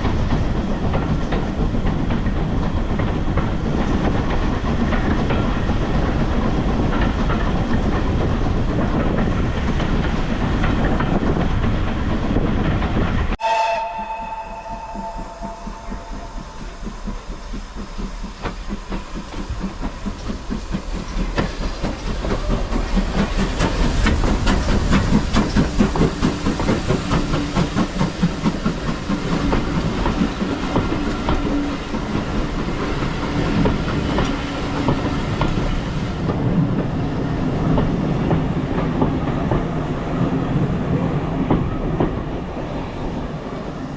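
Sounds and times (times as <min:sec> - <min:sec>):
steam train running: 0:00.0 - 0:43.9
steam whistle two-note blast: 0:13.4 - 0:17.4.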